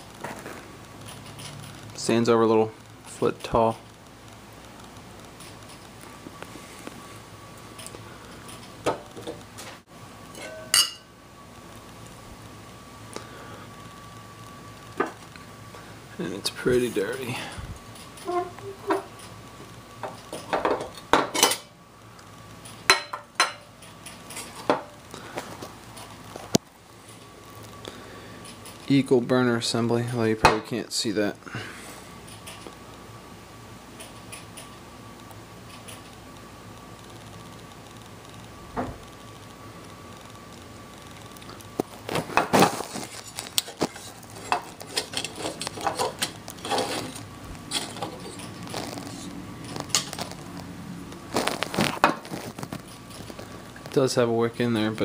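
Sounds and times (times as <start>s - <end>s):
glass and metal lamp parts clinking: 10.4s - 11.0s
metal and glass lamp parts rattling: 43.1s - 50.2s.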